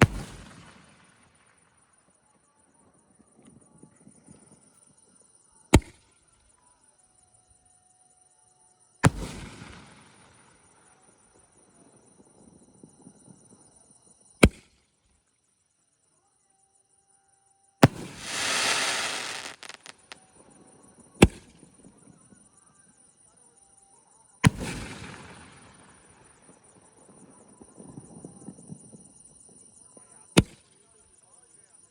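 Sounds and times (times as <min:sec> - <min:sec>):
fireworks crackling hiss: 0:17.8 - 0:20.2
fireworks shell bangs: 0:17.8 - 0:20.2.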